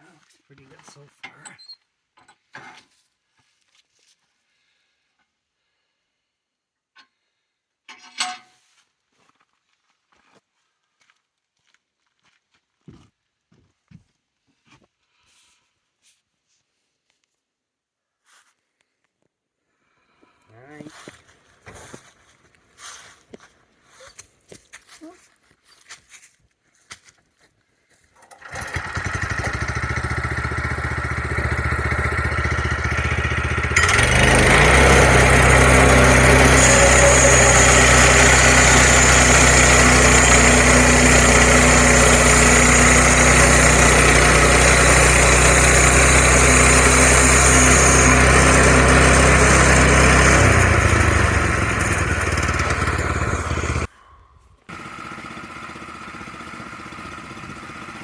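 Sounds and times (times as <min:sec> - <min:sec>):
sawmill gas engine running: 0:28.2 - 0:53.9, 0:54.7 - 0:58.0
quiet steady engine: 0:28.4 - 0:40.4, 0:45.2 - 0:53.9, 0:54.7 - 0:58.0.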